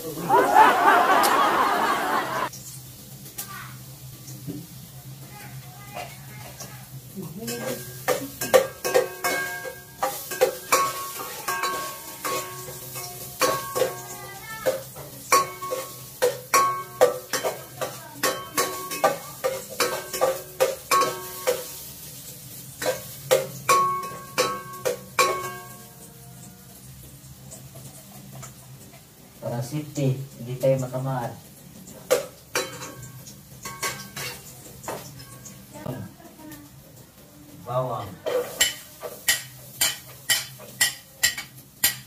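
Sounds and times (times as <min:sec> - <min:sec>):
light sizzle: 0:00.0 - 0:42.0
metal spatula knocking on pot: 0:07.5 - 0:21.7, 0:22.8 - 0:25.8, 0:38.3 - 0:42.0.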